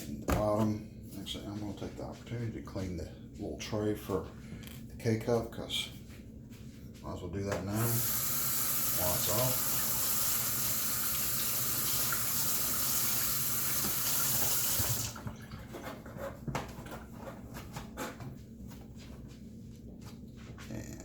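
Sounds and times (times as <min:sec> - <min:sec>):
tap water running into sink: 0:07.8 - 0:15.6.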